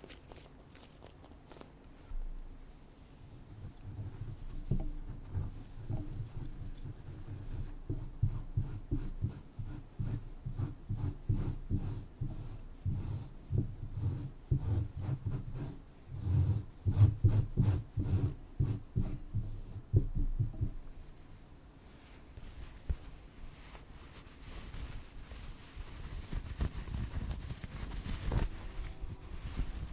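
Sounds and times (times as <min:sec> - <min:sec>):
crickets chirring: 0:00.0 - 0:29.9
scratching on microphone: 0:03.3 - 0:20.9, 0:22.0 - 0:29.9.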